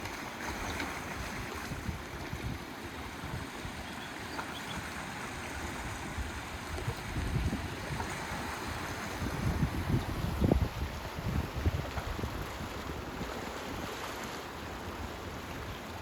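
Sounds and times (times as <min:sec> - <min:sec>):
wind buffeting microphone: 0:01.1 - 0:03.8, 0:05.6 - 0:13.9.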